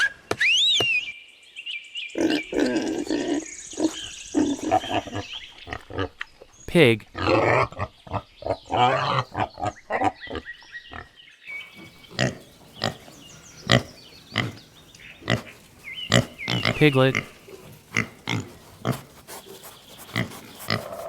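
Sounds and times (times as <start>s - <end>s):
pig grunting: 7.1s - 21.0s.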